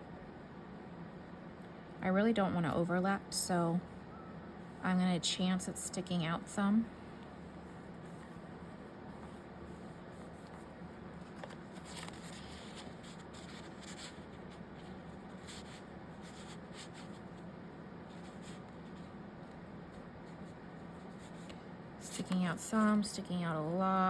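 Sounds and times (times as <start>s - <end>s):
paper rustling on desk: 9.1s - 17.4s.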